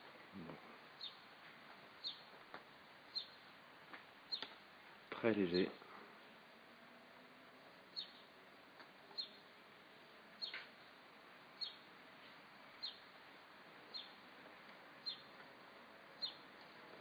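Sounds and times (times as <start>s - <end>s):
steady hiss: 0.0s - 17.0s
bird chirping: 0.4s - 1.3s, 2.0s - 2.4s, 3.1s - 3.5s, 4.3s - 4.6s, 7.9s - 8.4s, 9.0s - 9.5s, 10.3s - 10.9s, 11.5s - 11.9s, 12.7s - 13.1s, 13.8s - 14.3s, 15.0s - 15.5s, 16.1s - 16.6s.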